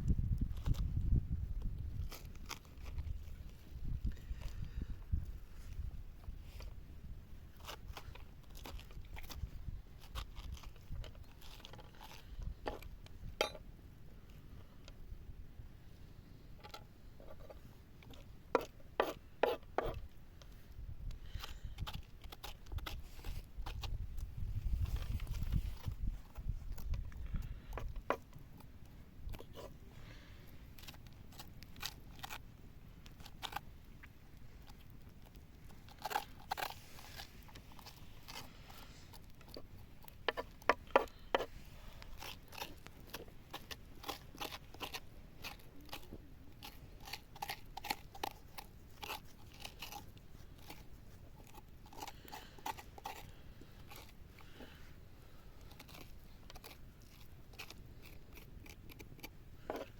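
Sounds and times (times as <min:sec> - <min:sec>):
raw food being cut: 0:00.0 - 0:13.6, 0:16.4 - 0:59.9.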